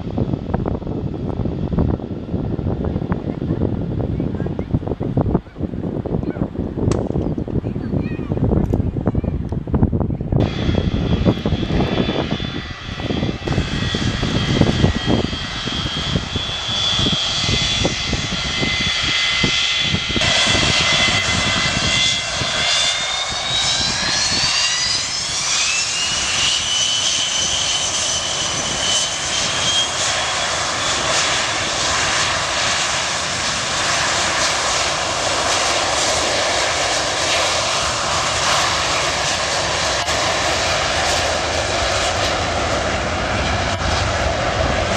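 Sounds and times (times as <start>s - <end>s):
gusty low rumble: 0.0s - 44.9s
jet engines roaring: 0.0s - 44.9s.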